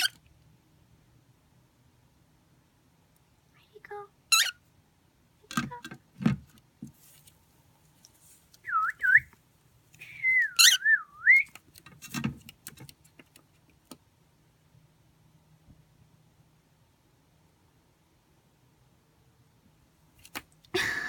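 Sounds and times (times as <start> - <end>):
cockatiel whistling: 8.7 - 9.3, 10.0 - 11.6.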